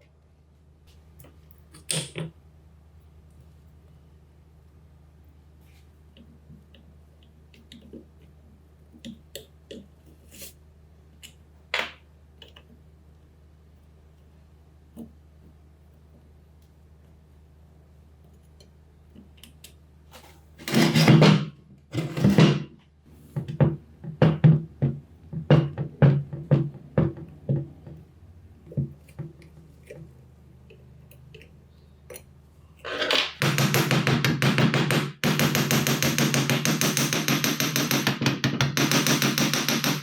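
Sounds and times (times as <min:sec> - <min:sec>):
power tool rapid hammering: 0:33.4 - 0:40.0.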